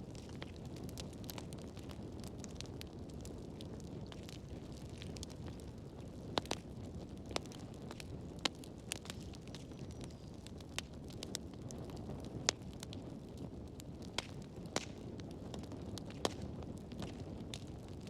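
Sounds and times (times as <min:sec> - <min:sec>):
firewood crackling in fireplace: 0:00.0 - 0:18.0.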